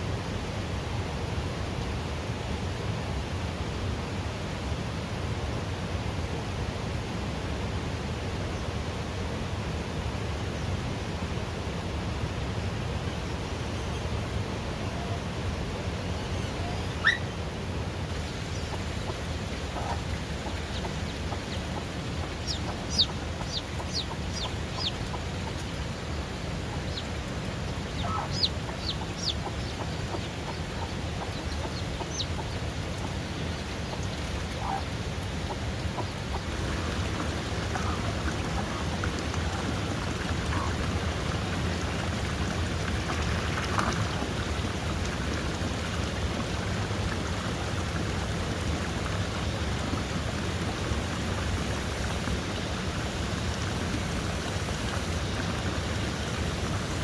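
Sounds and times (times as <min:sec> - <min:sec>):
rain hissing: 0:16.5 - 0:57.0
chickens clucking: 0:18.5 - 0:25.9, 0:27.8 - 0:42.4
chicks peeping: 0:18.5 - 0:25.9, 0:26.7 - 0:27.1, 0:27.8 - 0:40.7.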